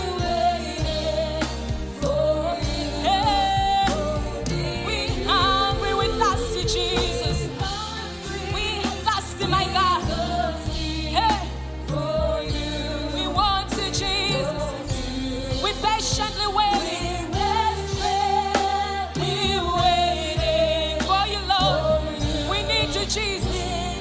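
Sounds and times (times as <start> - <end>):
gospel band playing slow song: 0.0 - 24.0
person singing with vibrato: 0.0 - 24.0
sustained bass notes: 0.0 - 24.0.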